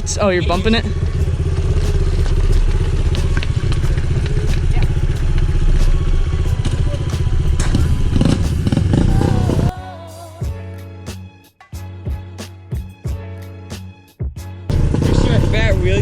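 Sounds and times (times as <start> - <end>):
small motorcycle engine puttering: 0.1 - 9.7, 14.7 - 16.0.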